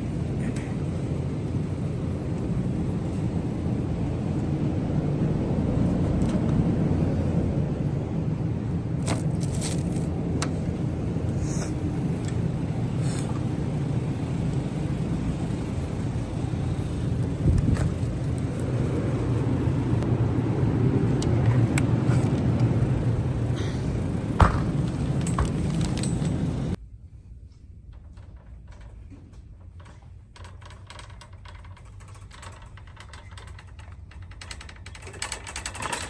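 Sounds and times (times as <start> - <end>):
car engine and road noise: 0.0 - 26.8.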